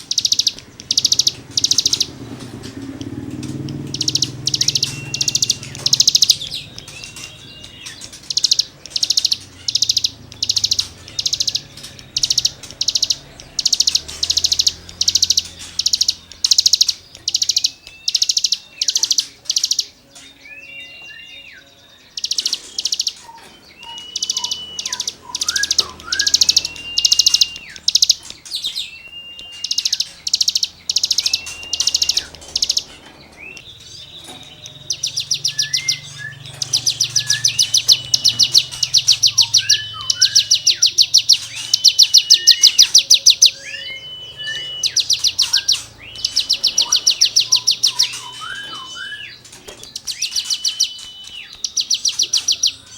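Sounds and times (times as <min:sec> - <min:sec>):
bird rasping rattles: 0:00.0 - 0:20.3, 0:22.2 - 0:28.9, 0:29.5 - 0:43.6
bird whistled notes: 0:00.0 - 0:52.9.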